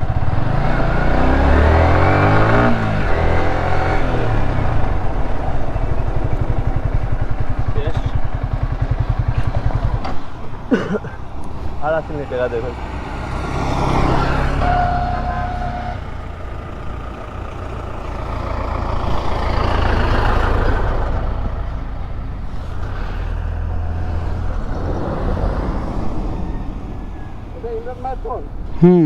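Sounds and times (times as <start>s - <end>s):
motor vehicles passing: 0.0s - 29.0s
short steady tone: 14.5s - 16.3s.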